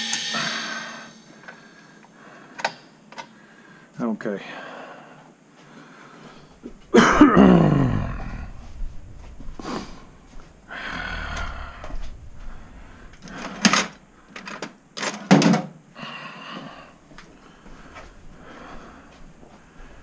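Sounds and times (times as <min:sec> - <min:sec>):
sound sliding down in pitch: 0:00.0 - 0:01.4
sharp metal clanks: 0:00.0 - 0:01.7.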